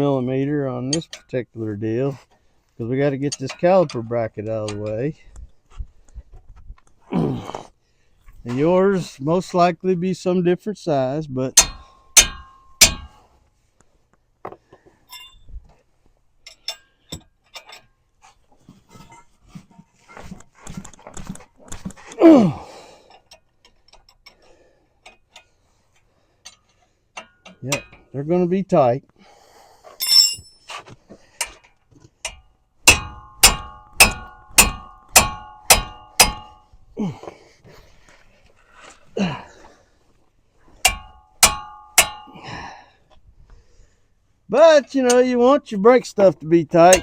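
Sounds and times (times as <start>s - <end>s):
wrench clinking on bolts: 0.8s - 1.4s, 3.2s - 5.0s, 11.6s - 13.2s, 15.0s - 15.5s, 16.4s - 17.9s, 26.4s - 28.2s, 30.0s - 30.8s, 31.4s - 36.8s, 40.8s - 42.7s, 45.0s - 45.2s, 46.8s - 47.0s
metallic clank: 11.6s - 13.2s, 30.0s - 30.8s, 32.2s - 36.7s, 40.8s - 42.5s.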